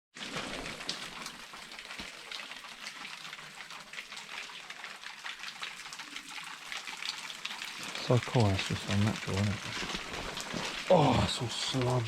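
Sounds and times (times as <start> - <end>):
water dripping into pool: 0.2 - 12.0
hiss of falling water: 7.6 - 12.0.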